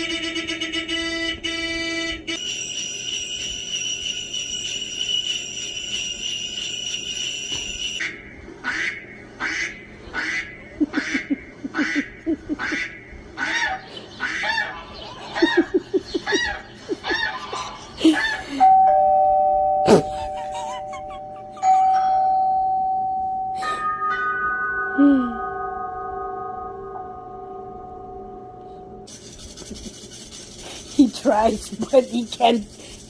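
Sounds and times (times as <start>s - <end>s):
horn-like tone pulses: 0.0s - 8.1s
long steady tone: 18.5s - 29.1s.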